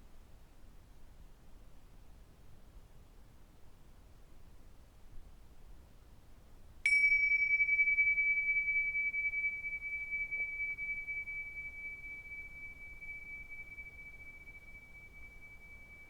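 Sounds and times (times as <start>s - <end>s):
high-pitched metal bell ringing: 6.9s - 16.0s.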